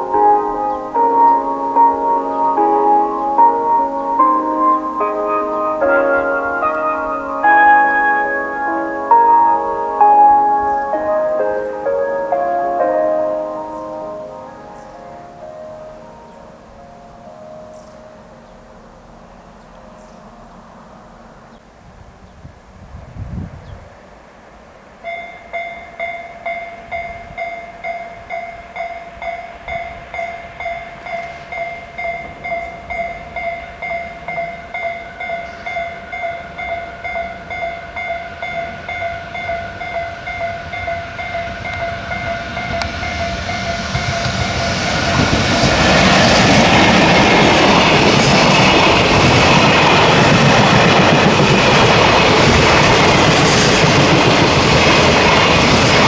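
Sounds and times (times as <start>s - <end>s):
level crossing bell ringing: 0.0s - 18.6s
train wheel noise: 25.1s - 56.0s
steady high whine: 25.4s - 56.0s.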